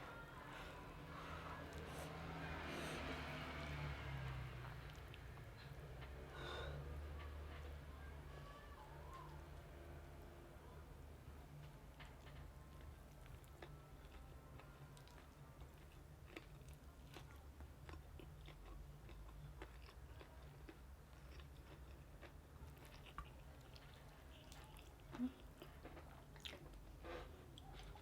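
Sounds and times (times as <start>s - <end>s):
chewing crunchy fried chicken: 11.6s - 28.0s.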